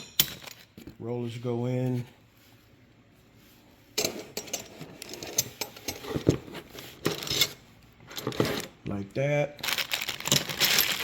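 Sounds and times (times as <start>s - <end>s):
metal door parts clinking and rattling: 9.8s - 11.0s.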